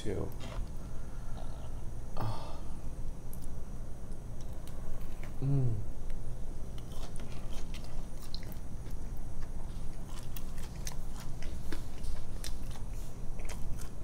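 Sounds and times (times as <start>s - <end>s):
person biting and chewing: 6.7s - 14.0s.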